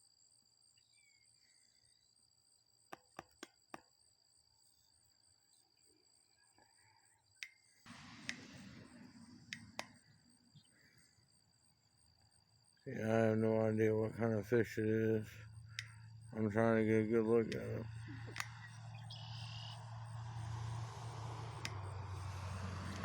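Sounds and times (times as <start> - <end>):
crickets trilling: 0.0 - 23.0
sharp clicks: 7.4 - 10.8, 15.5 - 16.4, 17.4 - 20.0, 20.6 - 23.0.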